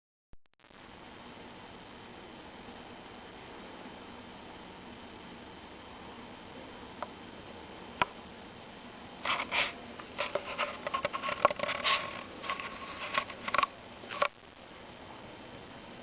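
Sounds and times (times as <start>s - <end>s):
irregular scraping and clicking: 9.2s - 14.4s.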